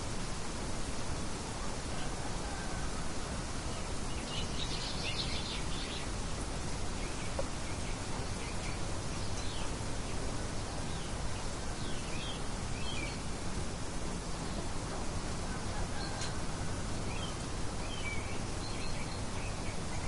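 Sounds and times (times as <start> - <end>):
wind-like noise: 0.0 - 20.0
birds chirping: 3.8 - 13.3.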